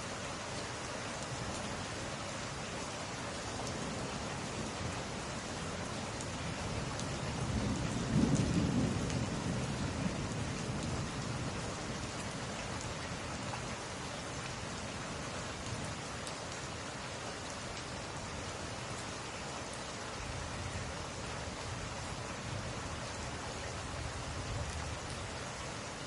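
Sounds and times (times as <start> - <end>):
steady rain falling: 0.0 - 26.0
low thunder rumble: 7.4 - 11.6.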